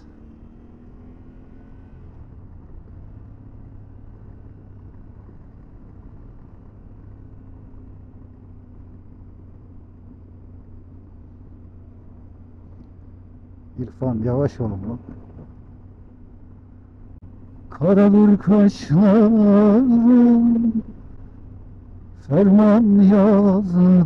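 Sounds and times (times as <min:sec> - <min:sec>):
motorcycle engine running: 0:00.0 - 0:24.0
road noise: 0:00.0 - 0:24.0.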